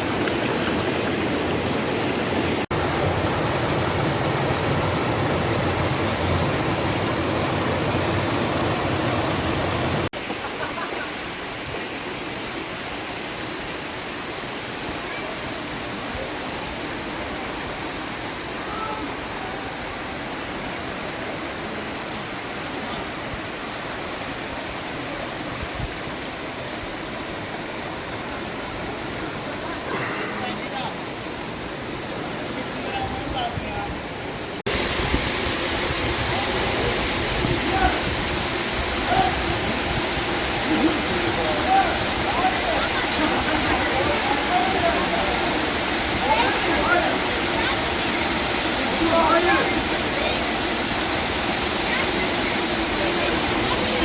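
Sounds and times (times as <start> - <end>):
stream and waterfall rushing: 0.0 - 54.0.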